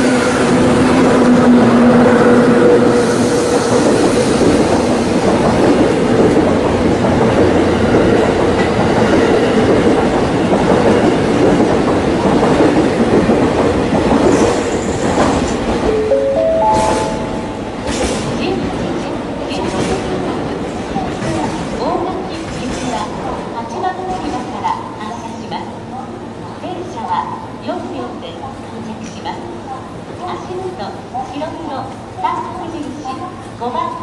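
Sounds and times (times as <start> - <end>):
train wheels rumbling on rails: 0.0 - 16.0, 17.0 - 34.0
clickety-clack over rail joints: 3.7 - 15.9, 17.8 - 25.3.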